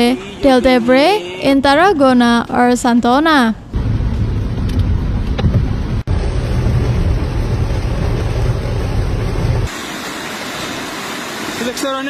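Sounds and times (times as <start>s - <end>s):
wind buffeting microphone: 3.8s - 9.7s
rushing water: 6.1s - 12.0s.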